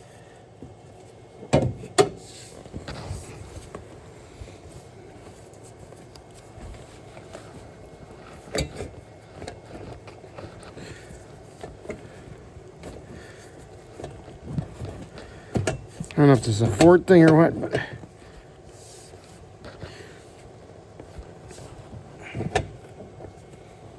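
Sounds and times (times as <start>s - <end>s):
low steady background noise: 0.0s - 23.9s
parts knocking and clunking: 1.4s - 2.2s, 13.9s - 18.0s.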